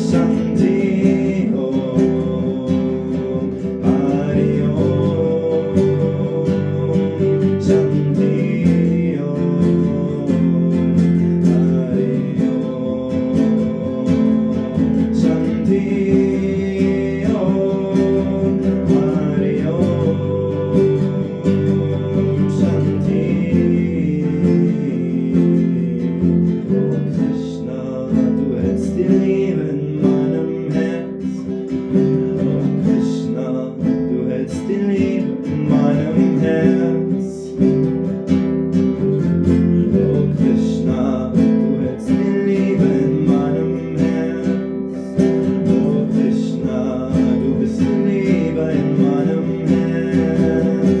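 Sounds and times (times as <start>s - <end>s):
acoustic guitar playing: 0.0s - 51.0s.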